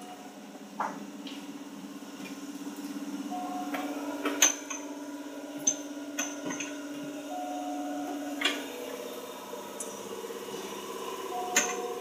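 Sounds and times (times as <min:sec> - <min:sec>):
train car hum with tones: 0:00.0 - 0:12.0.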